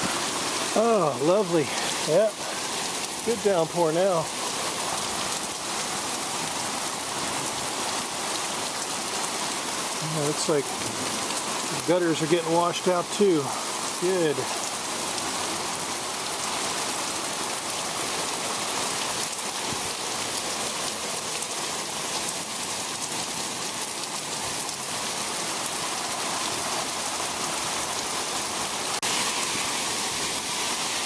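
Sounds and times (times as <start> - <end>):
heavy rain: 0.0 - 31.0.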